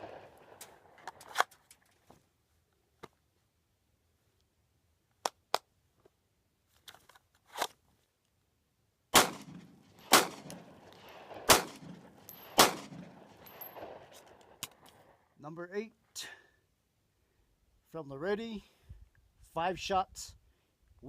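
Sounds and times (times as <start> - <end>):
pistol shots with echo: 0.0 - 1.0, 9.1 - 14.6.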